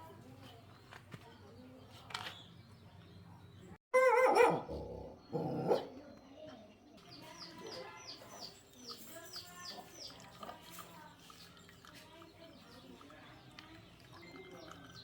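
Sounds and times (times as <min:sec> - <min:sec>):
dog barking: 0:04.0 - 0:05.9.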